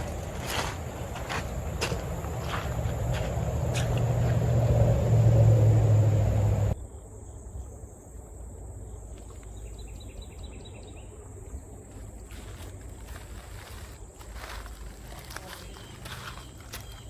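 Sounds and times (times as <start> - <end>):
low rumble: 0.0 - 6.8
insects droning: 0.0 - 17.0.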